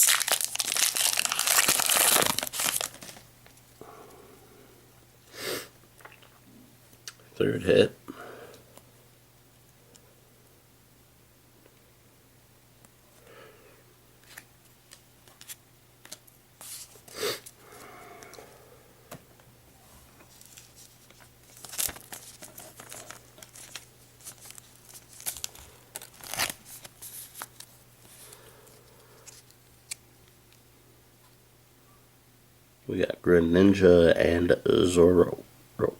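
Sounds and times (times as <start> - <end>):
foil wrapper crinkling and tearing: 0.0 - 3.3, 20.3 - 28.4
cards shuffling: 20.3 - 28.4.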